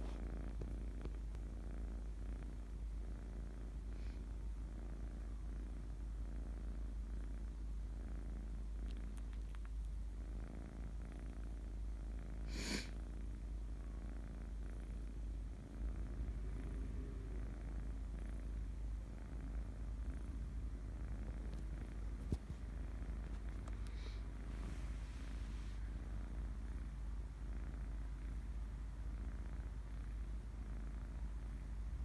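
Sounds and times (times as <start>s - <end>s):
kitten purring: 0.0s - 32.0s.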